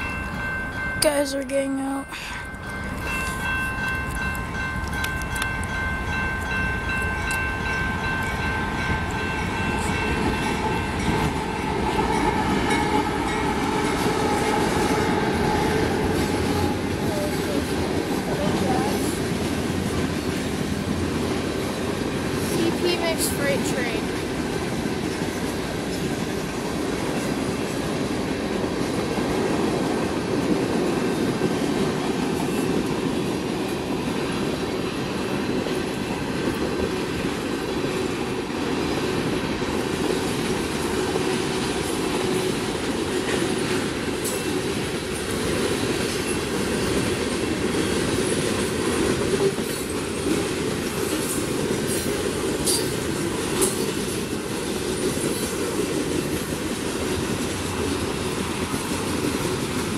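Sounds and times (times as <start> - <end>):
wheels rumbling on rails: 0.0 - 59.9.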